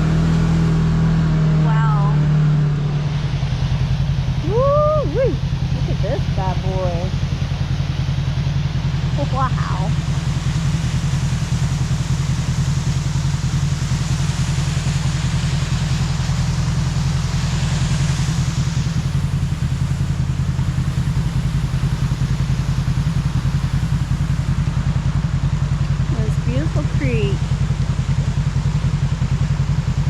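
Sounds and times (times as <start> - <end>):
vehicle engine running: 0.0 - 30.0
high hiss: 9.9 - 24.8.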